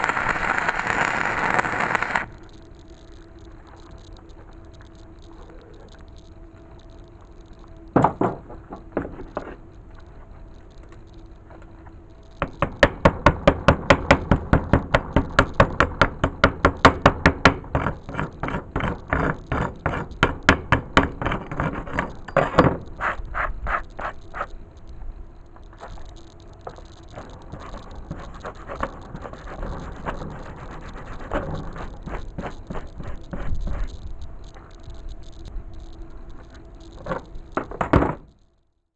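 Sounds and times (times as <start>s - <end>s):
rapid evenly spaced knocks: 12.4s - 24.5s.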